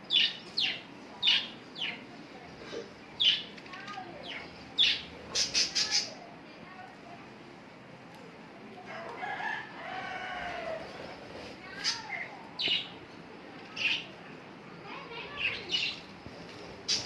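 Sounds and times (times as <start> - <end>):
budgerigars chattering: 4.3 - 6.2.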